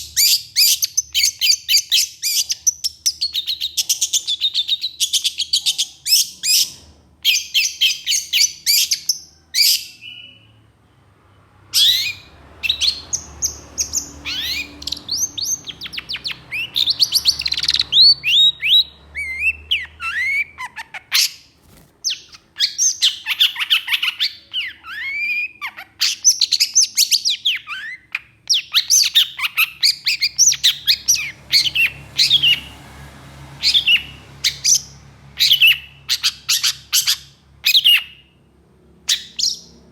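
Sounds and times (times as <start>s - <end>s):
bird whistled notes: 13.9s - 21.3s.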